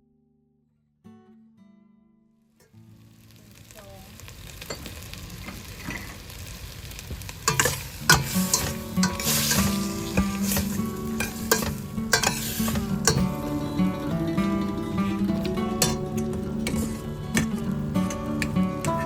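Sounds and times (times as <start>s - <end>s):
food sizzling in a pan: 2.6s - 19.0s
utensil scraping a pan: 7.4s - 13.5s, 15.0s - 19.0s.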